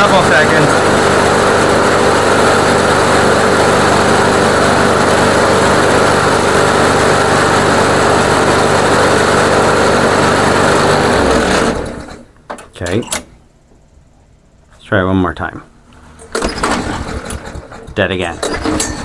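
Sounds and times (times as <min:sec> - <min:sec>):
lawnmower engine running: 0:00.0 - 0:12.4, 0:15.9 - 0:19.0.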